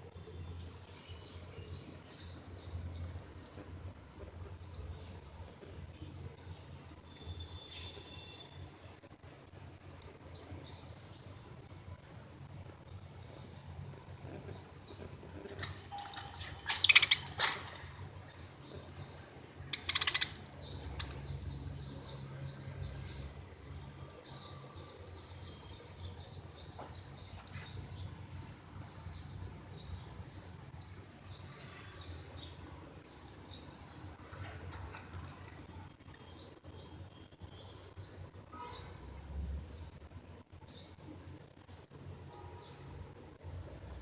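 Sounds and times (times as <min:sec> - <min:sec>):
budgerigars chirping: 0:15.4 - 0:17.7, 0:19.6 - 0:21.2.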